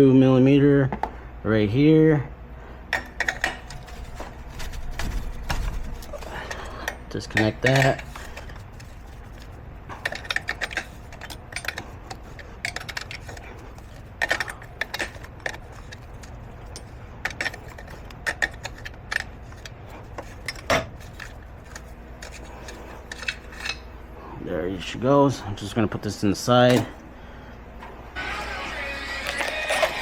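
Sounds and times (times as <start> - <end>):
steady low hum: 0.0 - 30.0
wrench clinking on metal: 6.4 - 8.5, 10.0 - 22.4.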